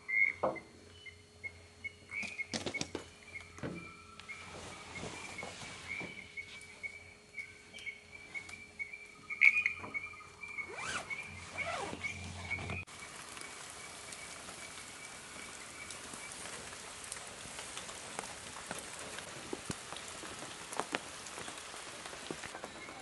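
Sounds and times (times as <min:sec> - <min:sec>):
rain pattering: 0:12.6 - 0:23.0.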